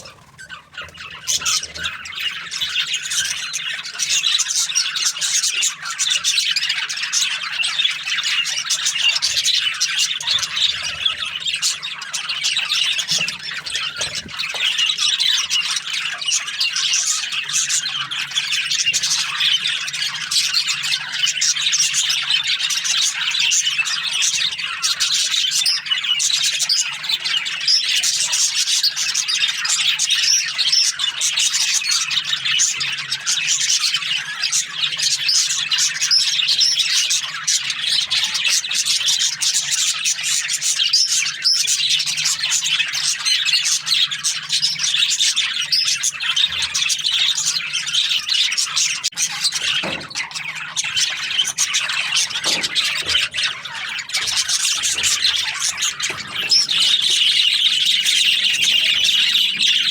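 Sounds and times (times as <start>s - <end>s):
budgerigars chattering and squawking: 0.0s - 59.9s.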